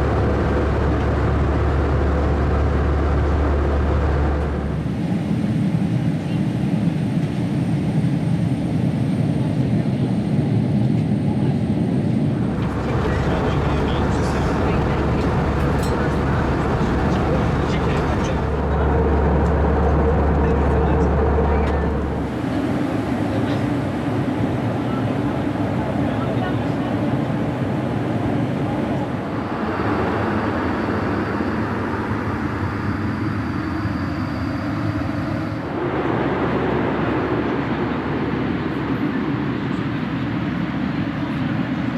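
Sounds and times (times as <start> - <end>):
jet cabin rumble: 0.0 - 7.9, 9.4 - 41.9.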